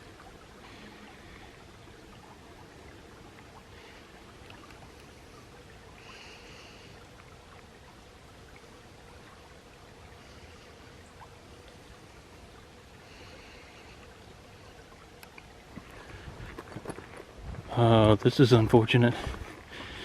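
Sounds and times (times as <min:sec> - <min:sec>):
stream running water: 0:00.0 - 0:20.0.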